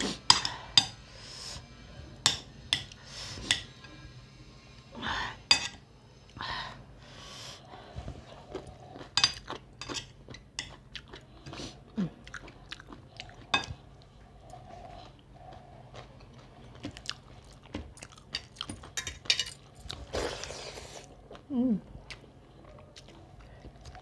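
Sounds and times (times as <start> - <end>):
person chewing and lip-smacking: 10.3 - 13.5.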